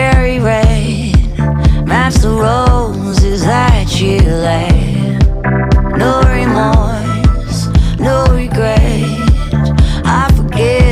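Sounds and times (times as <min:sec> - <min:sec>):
woman singing pop song: 0:00.0 - 0:10.9
steady drum beat: 0:02.2 - 0:09.4.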